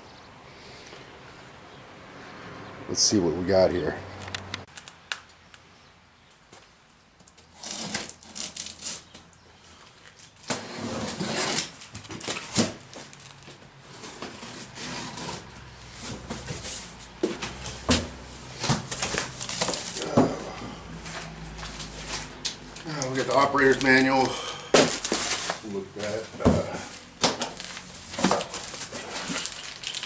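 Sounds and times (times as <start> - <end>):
cardboard packaging rustling: 9.8 - 30.0.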